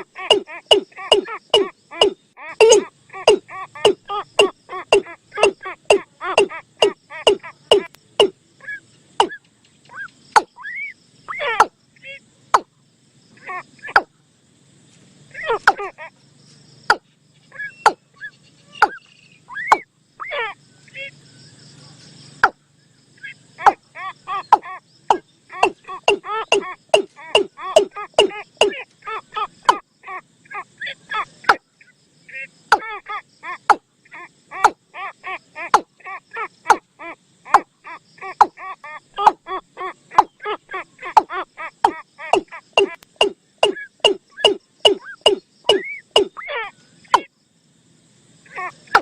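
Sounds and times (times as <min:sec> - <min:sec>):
bird chirps: 0:00.0 - 0:14.2, 0:15.3 - 0:47.3, 0:48.5 - 0:49.0
sharp clicks: 0:42.3 - 0:46.3.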